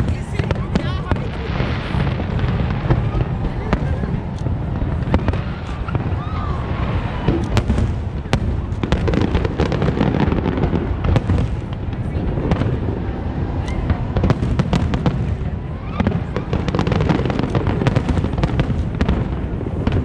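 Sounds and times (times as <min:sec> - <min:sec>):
fireworks booming: 0:00.0 - 0:20.0
fireworks crackling pops: 0:00.0 - 0:20.0.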